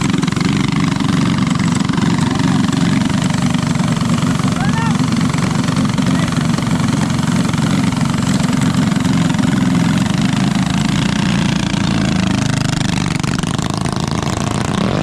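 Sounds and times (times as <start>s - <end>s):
mini bike engine running: 0.0s - 15.0s.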